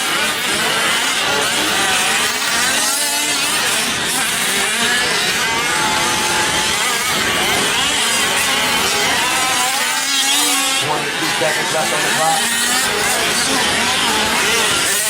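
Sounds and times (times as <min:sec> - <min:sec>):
small two-stroke engines revving: 0:00.0 - 0:15.0.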